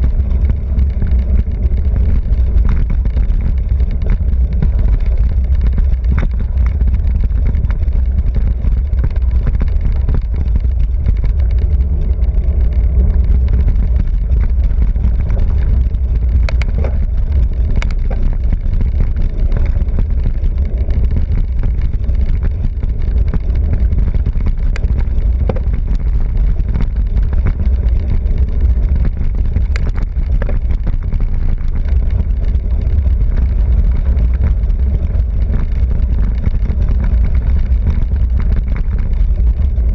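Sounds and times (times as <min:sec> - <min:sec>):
bicycle road noise rumble: 0:00.0 - 0:39.9
wind buffeting microphone: 0:00.0 - 0:39.9
sharp clicks: 0:16.2 - 0:18.8.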